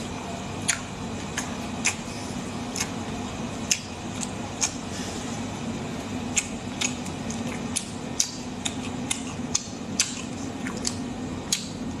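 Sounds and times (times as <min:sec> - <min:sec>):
steady low hum: 0:00.0 - 0:12.0
person chewing with wet mouth clicks: 0:00.6 - 0:03.0, 0:03.6 - 0:04.9, 0:06.3 - 0:11.9.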